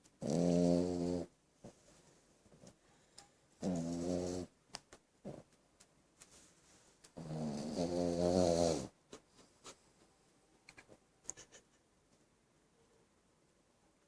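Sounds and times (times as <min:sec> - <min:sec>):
dog snoring: 0:00.2 - 0:01.3, 0:03.6 - 0:04.5, 0:07.2 - 0:08.9.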